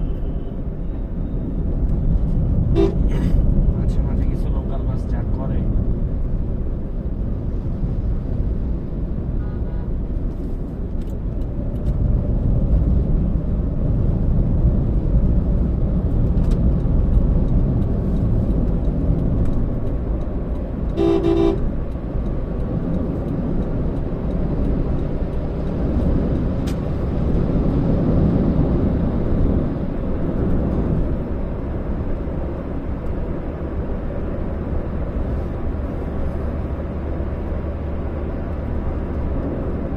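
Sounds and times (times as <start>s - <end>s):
car driving in traffic: 0.0s - 39.9s
vehicle horn: 2.7s - 3.2s, 21.0s - 21.7s
faint horn toot: 2.8s - 3.2s, 21.0s - 21.7s.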